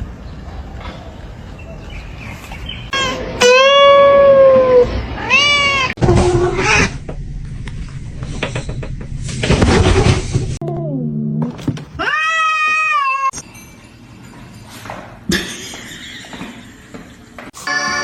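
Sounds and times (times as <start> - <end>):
cat meowing: 3.0 - 6.9, 12.0 - 13.4.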